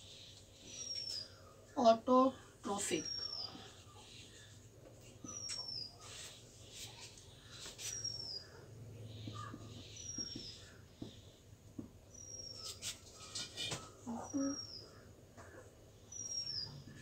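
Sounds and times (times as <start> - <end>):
marker writing on whiteboard: 9.2 - 11.3.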